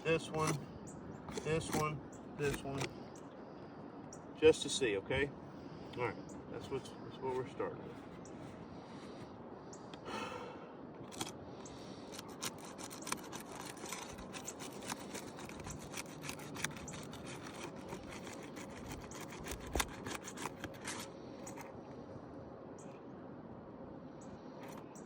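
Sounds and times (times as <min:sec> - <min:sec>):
pry bar scraping shingles: 0:00.1 - 0:00.7, 0:01.3 - 0:03.0, 0:11.1 - 0:21.7
shingle seals cracking and snapping: 0:12.1 - 0:21.0.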